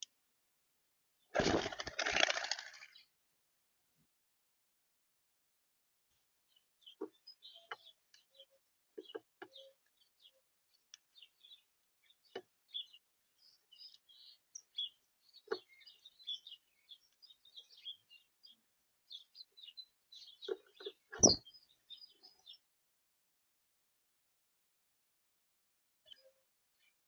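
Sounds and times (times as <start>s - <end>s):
small birds chirping: 6.5s - 22.7s, 26.1s - 27.0s.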